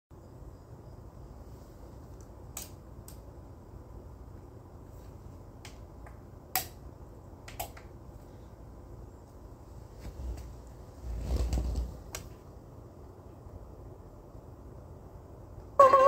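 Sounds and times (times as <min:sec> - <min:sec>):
low steady hum: 0:00.1 - 0:16.0
sharp clicks: 0:07.4 - 0:08.0.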